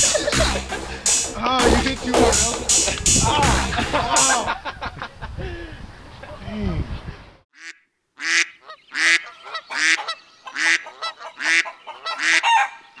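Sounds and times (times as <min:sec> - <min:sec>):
bird honking calls: 0:07.6 - 0:13.0.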